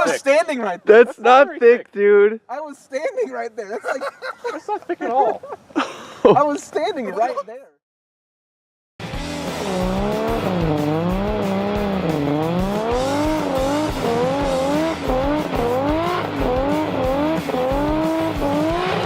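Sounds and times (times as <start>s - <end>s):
rally car engine revving: 9.0s - 19.0s.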